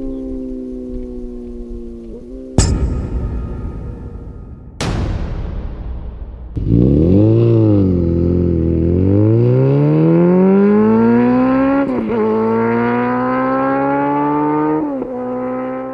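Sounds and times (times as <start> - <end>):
motorcycle engine accelerating: 6.6 - 15.9.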